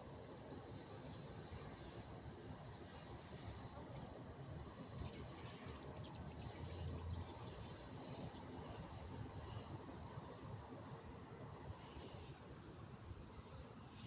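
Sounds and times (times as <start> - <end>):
faint background noise: 0.0 - 14.0
small bird chirping: 3.9 - 4.2, 5.0 - 8.5, 11.8 - 12.2.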